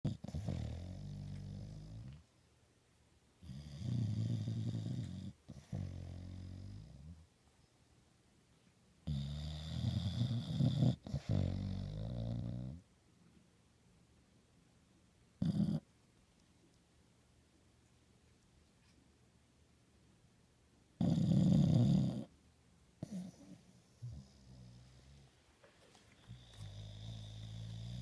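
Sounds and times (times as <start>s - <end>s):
dog snoring loudly: 0.0s - 2.2s, 3.4s - 7.2s, 9.1s - 12.8s, 15.4s - 15.8s, 21.0s - 22.3s, 23.0s - 25.2s, 26.3s - 28.0s.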